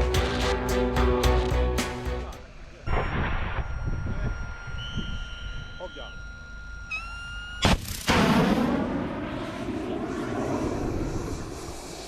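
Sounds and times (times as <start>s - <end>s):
high seeker tone: 0.0s - 8.3s.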